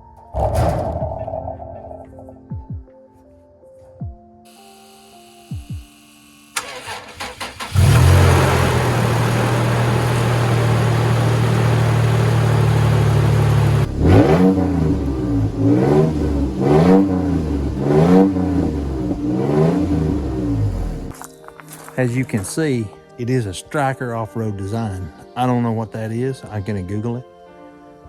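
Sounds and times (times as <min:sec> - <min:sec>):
truck engine starting and revving: 0:06.5 - 0:21.1.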